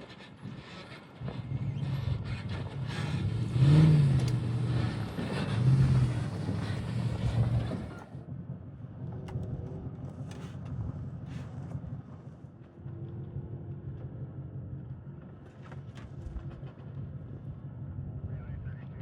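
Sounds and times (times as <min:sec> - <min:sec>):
loud race engine running: 0:00.0 - 0:08.2
low engine rumble: 0:00.0 - 0:19.0.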